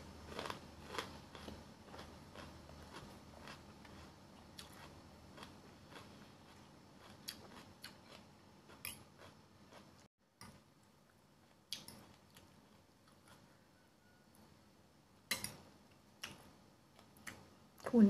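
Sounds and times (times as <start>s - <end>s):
crunchy chewing: 0.2s - 10.1s, 11.4s - 14.2s.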